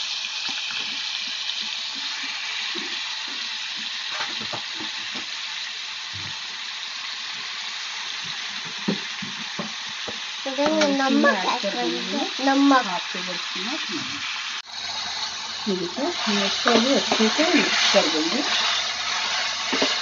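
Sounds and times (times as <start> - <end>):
chicken sizzling in oil: 0.0 - 20.0
person speaking: 10.5 - 14.2
spatula knocking in pan: 19.2 - 20.0.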